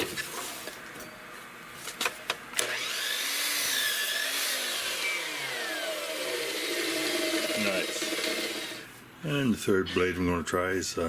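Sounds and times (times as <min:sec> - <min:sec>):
chop saw cutting wood: 0:02.6 - 0:08.9.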